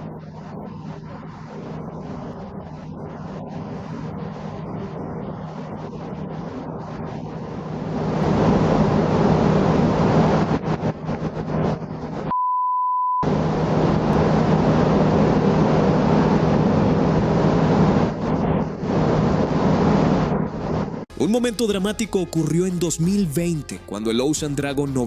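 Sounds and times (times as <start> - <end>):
boat engine hum: 0.0 - 12.3
wind: 0.0 - 12.3
censor bleep: 12.3 - 13.2.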